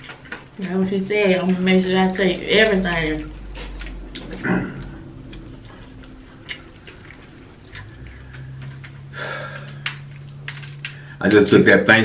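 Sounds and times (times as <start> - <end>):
person chewing: 0.0 - 11.4
low steady hum: 0.0 - 12.0
heavy breath: 7.9 - 10.0.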